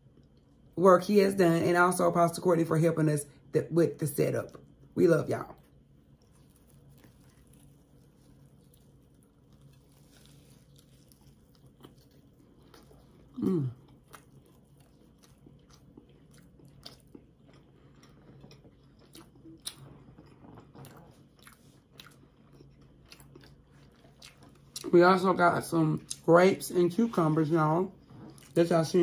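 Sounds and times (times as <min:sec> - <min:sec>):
soft crunchy chewing: 0:00.0 - 0:00.8, 0:04.3 - 0:29.0
person humming mm: 0:13.4 - 0:13.8.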